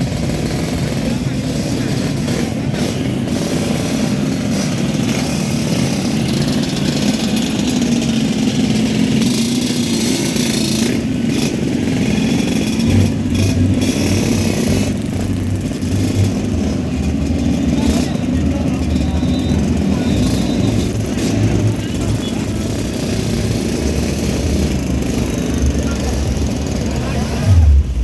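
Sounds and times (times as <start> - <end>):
vehicle engines running: 0.0 - 28.0
deep bass pulsing: 27.0 - 28.0.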